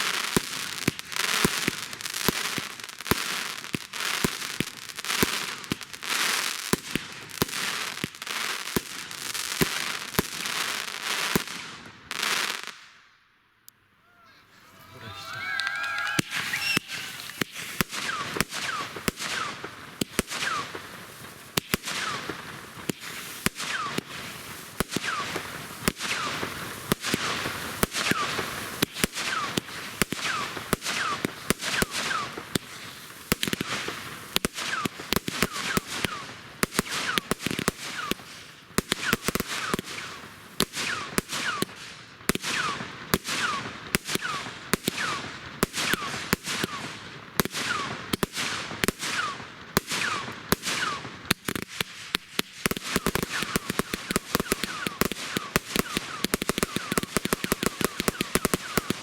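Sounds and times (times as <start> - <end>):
fireworks banging and popping: 0.0 - 12.8, 14.5 - 59.0
firework whistles falling: 14.3 - 19.6, 52.9 - 59.0.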